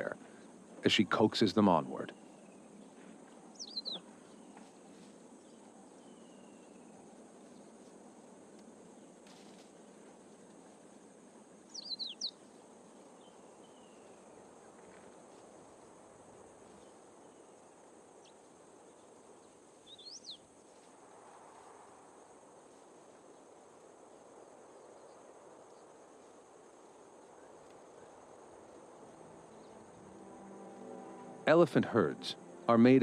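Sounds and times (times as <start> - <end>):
sweeping bird calls: 0.0 - 7.9, 11.7 - 14.6, 18.2 - 20.6, 27.3 - 33.0
faint steady high hiss: 0.0 - 33.0.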